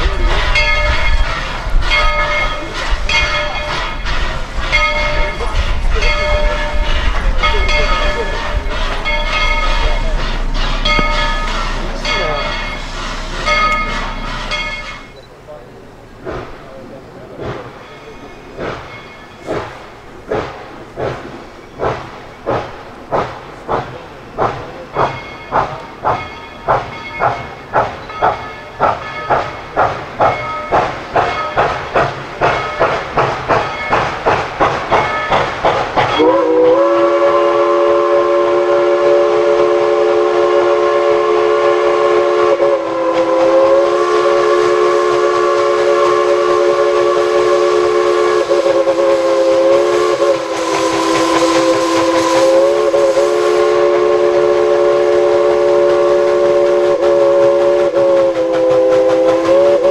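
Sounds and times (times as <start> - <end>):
steam chime whistle: 0.0 - 15.3, 25.0 - 31.8, 35.0 - 59.9
steam locomotive exhaust chuffs: 0.0 - 59.9.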